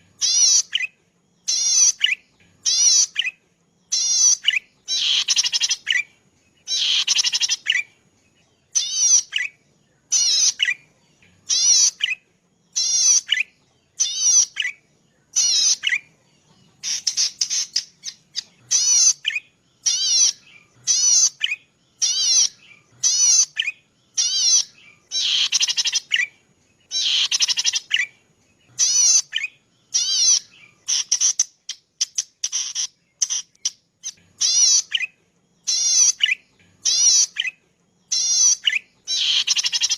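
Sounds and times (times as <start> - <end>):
warbler singing buzzy trills: 0.0 - 39.9.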